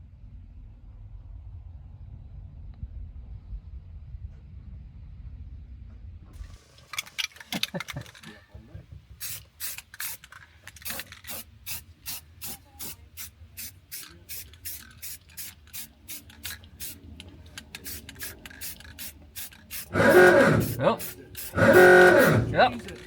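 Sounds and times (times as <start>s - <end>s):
hand rubbing strokes: 9.2s - 23.0s.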